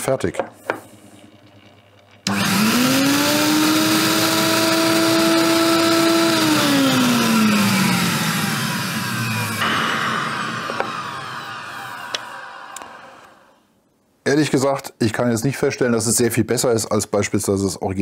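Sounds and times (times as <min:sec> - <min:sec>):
vacuum suction motor whine: 0:00.9 - 0:13.6.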